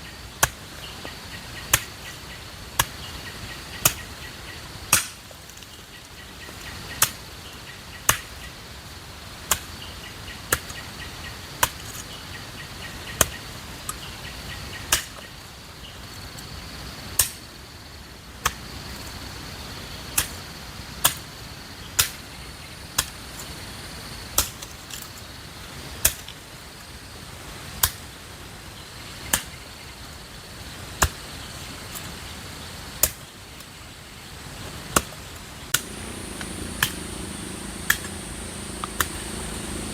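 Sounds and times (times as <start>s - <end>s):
insects droning: 0.0s - 39.9s
hand tool chopping blows: 35.7s - 39.8s.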